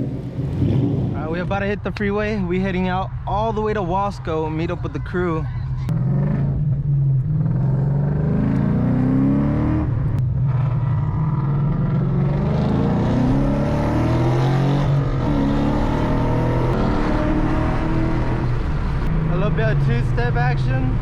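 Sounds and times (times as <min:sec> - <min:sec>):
car engine accelerating hard: 0:05.9 - 0:21.0.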